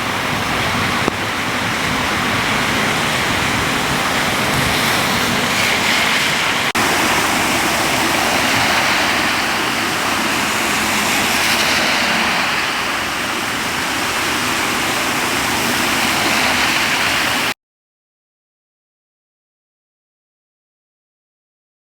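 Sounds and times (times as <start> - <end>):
floodwater rushing: 0.0 - 17.6.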